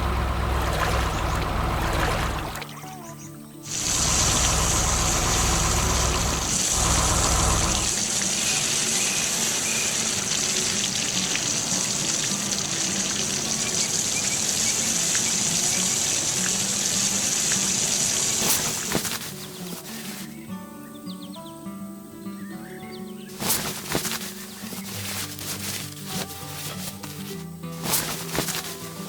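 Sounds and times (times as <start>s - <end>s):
deep rumble: 0.0s - 2.6s, 3.7s - 8.0s
water rushing and gushing: 0.0s - 2.8s, 3.7s - 20.2s.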